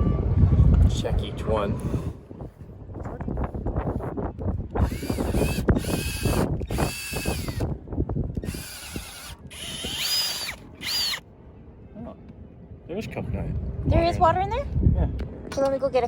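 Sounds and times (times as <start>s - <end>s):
drill whining into coconut: 4.8s - 7.7s, 8.4s - 11.2s.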